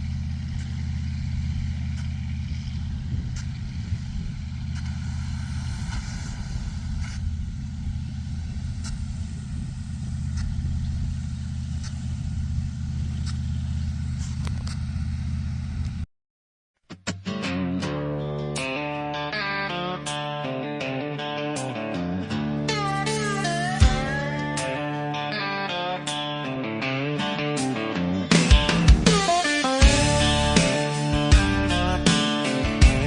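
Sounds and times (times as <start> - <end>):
large engine humming: 0.0 - 16.1, 22.2 - 25.4, 27.9 - 33.0.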